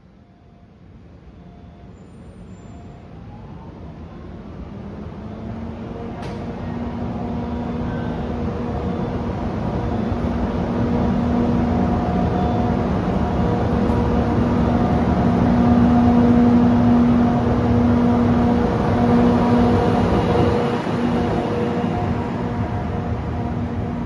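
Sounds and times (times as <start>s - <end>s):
electric locomotive rumble: 1.8s - 24.0s.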